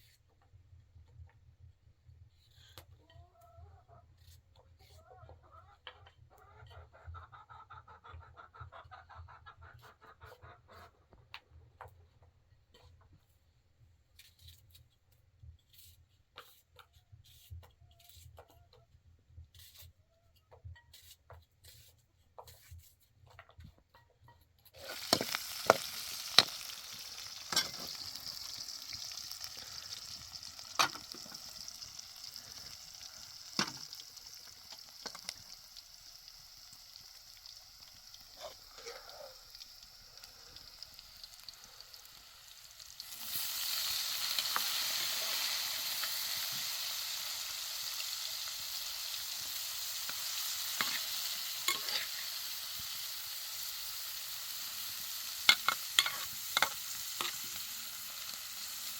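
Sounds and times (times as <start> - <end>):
sizzling hiss: 24.8 - 58.9.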